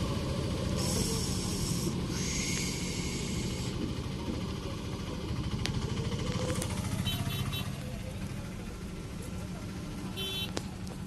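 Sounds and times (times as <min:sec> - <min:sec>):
vehicle engine humming: 0:00.0 - 0:11.0
hiss: 0:00.7 - 0:03.8.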